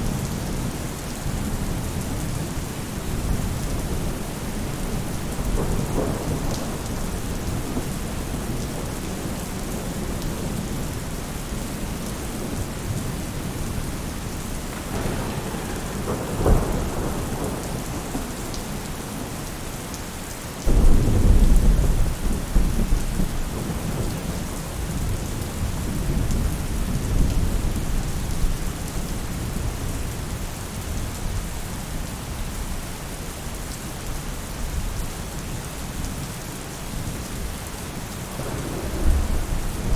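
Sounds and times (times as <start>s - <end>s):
rain falling on a roof: 0.0s - 39.9s
deep roll of thunder: 3.2s - 10.7s, 14.7s - 19.3s, 20.7s - 28.5s, 38.3s - 39.9s
thunder clap: 5.4s - 8.4s, 14.7s - 19.2s, 20.7s - 24.2s, 38.4s - 39.9s.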